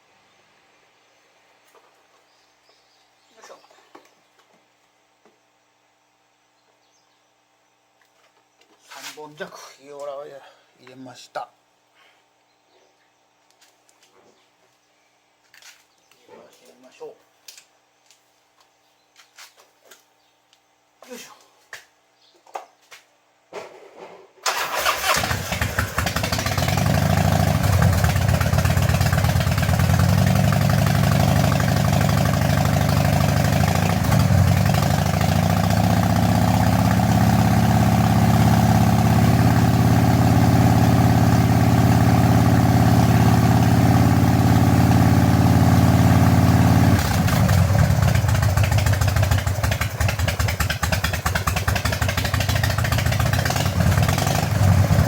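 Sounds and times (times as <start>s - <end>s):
motorcycle engine starting and running: 24.4s - 55.0s.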